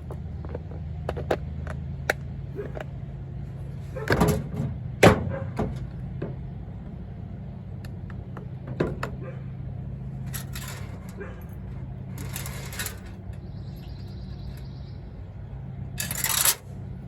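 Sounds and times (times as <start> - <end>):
drill bits clattering: 10.2 - 13.3, 16.0 - 16.6.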